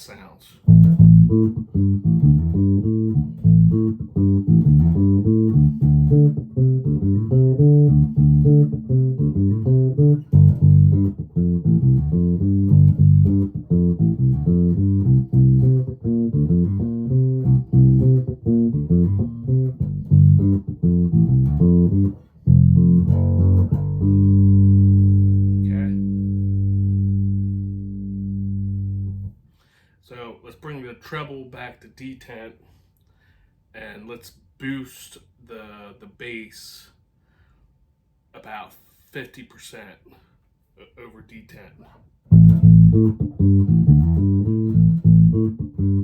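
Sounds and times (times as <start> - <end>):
electric bass notes: 0.6 - 29.4, 42.3 - 46.0.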